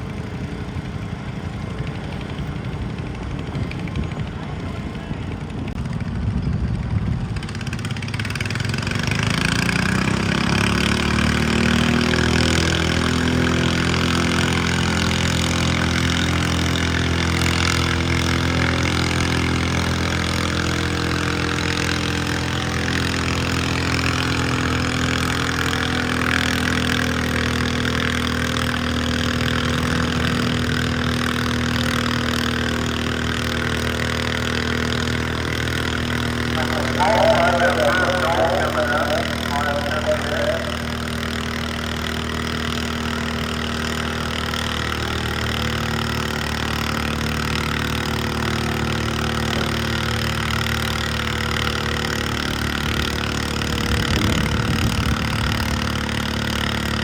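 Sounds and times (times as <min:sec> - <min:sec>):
tractor engine under load: 0:12.0 - 0:57.0.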